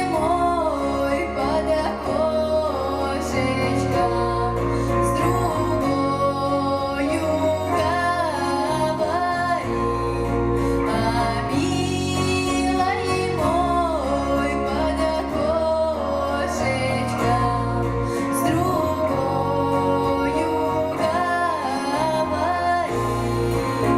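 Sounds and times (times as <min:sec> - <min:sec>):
held instrumental accompaniment: 0:00.0 - 0:23.9
woman singing with vibrato: 0:00.0 - 0:23.9.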